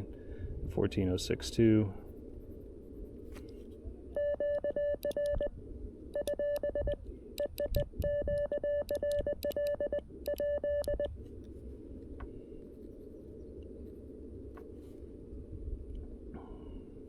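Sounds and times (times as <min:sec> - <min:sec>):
morse code beeps: 0:04.2 - 0:05.5, 0:06.1 - 0:11.1.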